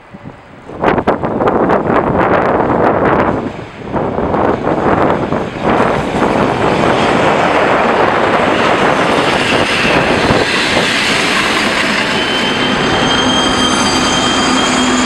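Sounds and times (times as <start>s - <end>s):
diesel locomotive engine passing: 0.0s - 15.0s
train coaches rolling on rails: 0.0s - 15.0s.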